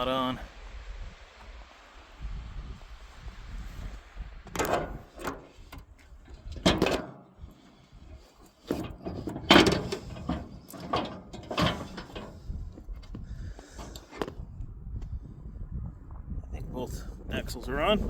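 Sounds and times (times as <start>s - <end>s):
metal clunks and scraping knocks: 4.4s - 14.4s.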